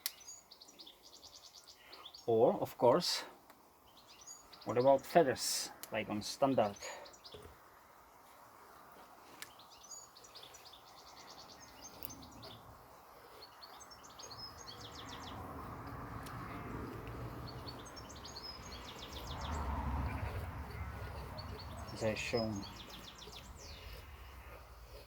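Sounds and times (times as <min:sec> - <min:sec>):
small birds chirping: 0:00.0 - 0:25.0
knife shaving wood: 0:09.1 - 0:25.0.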